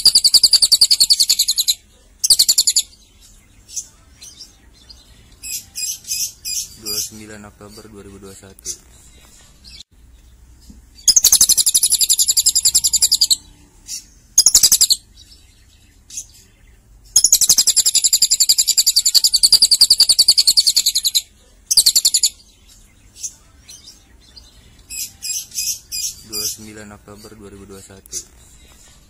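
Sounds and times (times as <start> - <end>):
lovebird singing fast trills: 0.0 - 3.4, 11.0 - 22.5.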